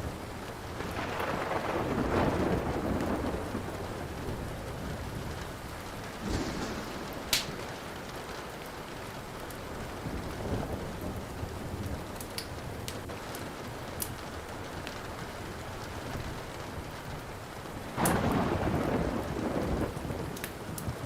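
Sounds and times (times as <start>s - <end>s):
steady rain: 0.0s - 21.0s
thunder rolling: 0.8s - 12.0s, 18.0s - 20.4s
wood fire crackling: 3.5s - 18.4s, 19.8s - 21.0s.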